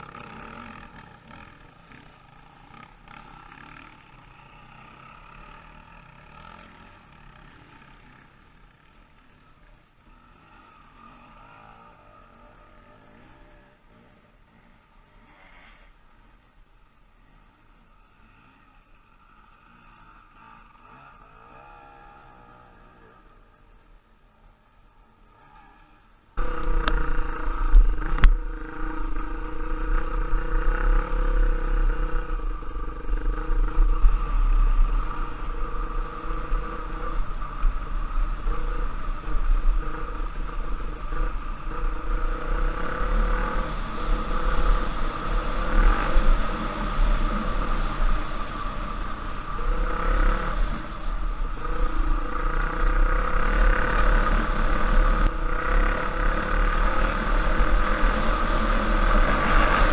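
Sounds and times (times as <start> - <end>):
off-road motorcycle engine: 0.0 - 59.9
low rumble and rattle: 24.7 - 59.9.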